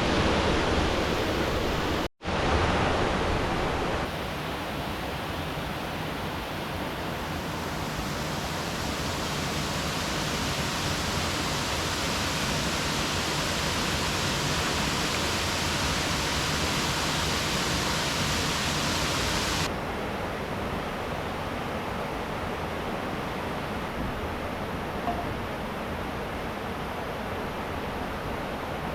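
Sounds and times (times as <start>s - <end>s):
river water rushing: 0.0s - 19.7s.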